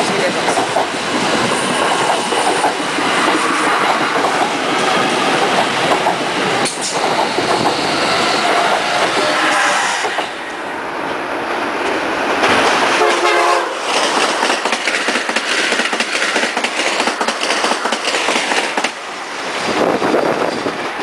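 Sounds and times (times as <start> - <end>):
train wheels on rail: 0.0 - 21.0
train horn blast: 9.1 - 10.2, 13.0 - 13.8.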